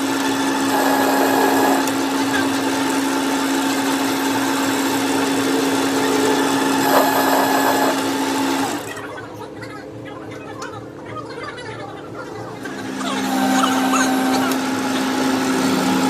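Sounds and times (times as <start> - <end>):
electric motor humming: 0.0 - 9.0, 12.6 - 16.0.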